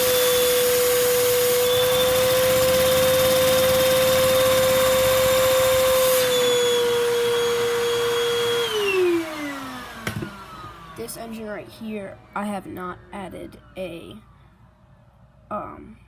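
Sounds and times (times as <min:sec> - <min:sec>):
vacuum cleaner whine: 0:00.0 - 0:12.3.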